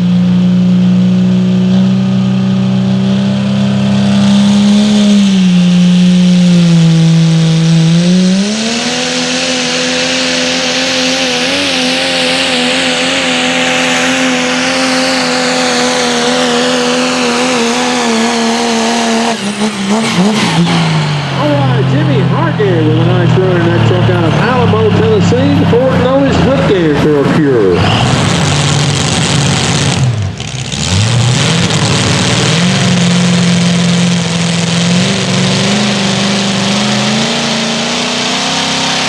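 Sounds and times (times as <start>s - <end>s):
diesel truck engine at full throttle: 0.0s - 39.0s.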